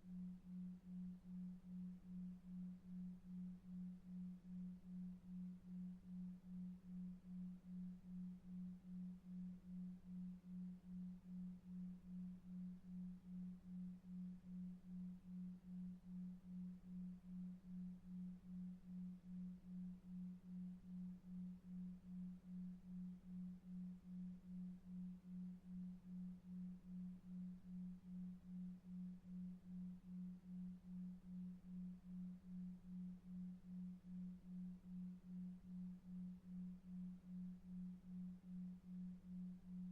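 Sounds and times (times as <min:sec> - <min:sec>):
low pulsing pure tone: 0:00.0 - 0:39.9.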